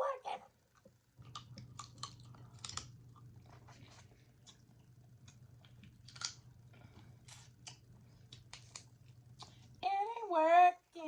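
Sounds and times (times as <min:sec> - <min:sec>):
steady low hum: 0:00.0 - 0:11.0
chewing: 0:00.8 - 0:09.8
crab legs cracking: 0:01.2 - 0:03.3, 0:04.4 - 0:06.6.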